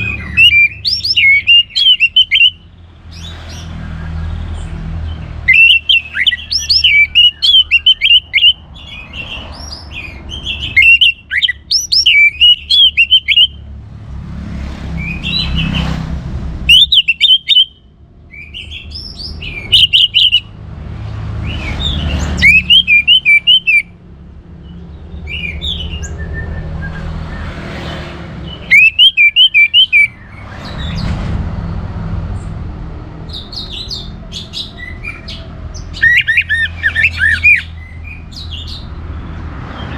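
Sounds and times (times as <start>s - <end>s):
thrush singing whistled phrases: 0.0s - 3.7s, 5.4s - 13.7s, 16.7s - 20.6s, 21.4s - 23.9s, 28.5s - 31.0s, 33.3s - 38.8s.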